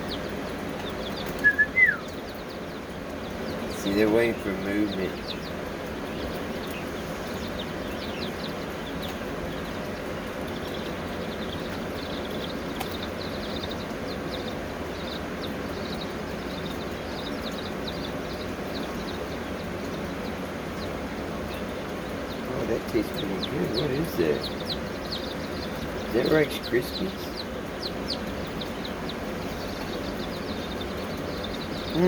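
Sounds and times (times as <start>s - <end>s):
chickens chirping: 0.0s - 32.0s
steady background noise: 0.0s - 32.0s.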